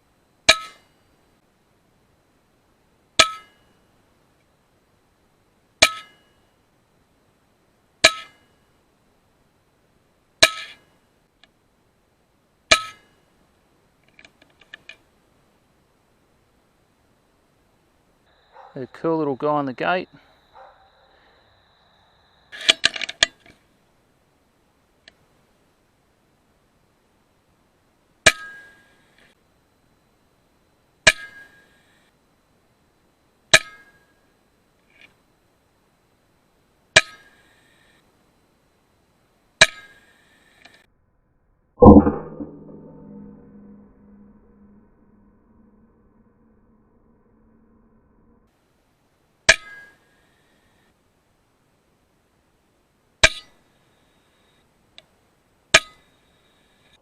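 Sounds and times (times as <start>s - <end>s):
metallic ring: 41.8s - 45.9s.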